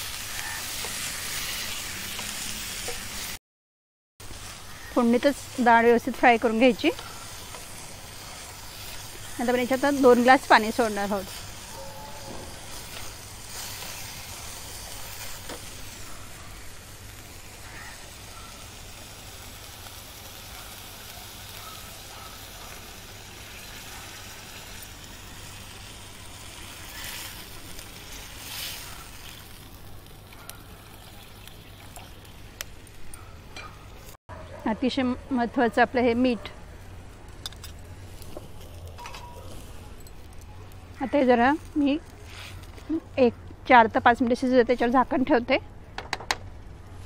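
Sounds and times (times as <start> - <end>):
food sizzling in hot oil: 0.0 - 3.4, 4.2 - 33.0.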